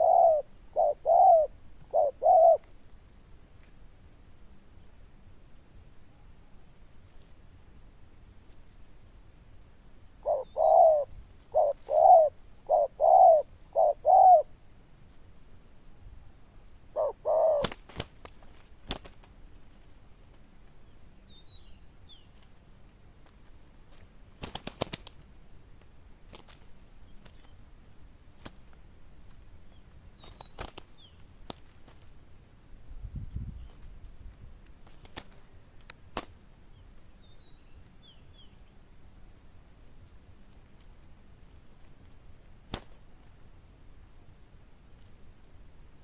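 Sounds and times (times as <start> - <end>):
dove cooing: 0.0 - 2.7, 10.2 - 14.5, 16.9 - 17.8.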